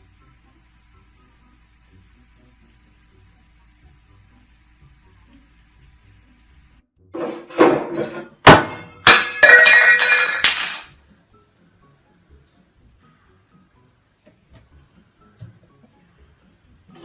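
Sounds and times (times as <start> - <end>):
hard objects falling and clattering: 7.4 - 11.0.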